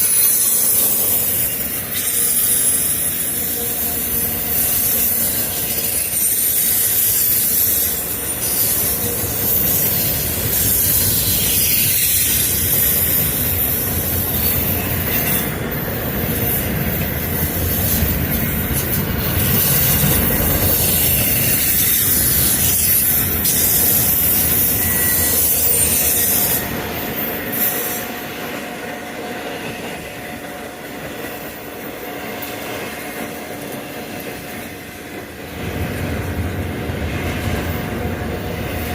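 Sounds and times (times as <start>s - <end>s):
freight train cars rumbling: 0.0s - 38.9s
faint wheel squeal: 16.2s - 28.2s.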